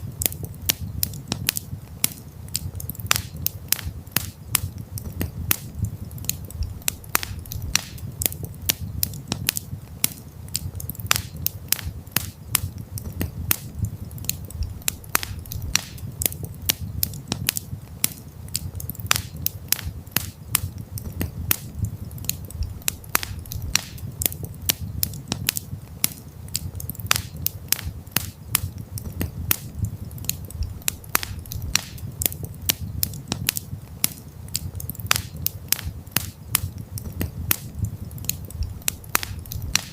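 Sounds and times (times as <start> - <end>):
campfire crackling and popping: 0.0 - 39.9
low steady rumble: 12.5 - 17.9, 20.5 - 25.9, 27.9 - 33.9, 35.9 - 39.9.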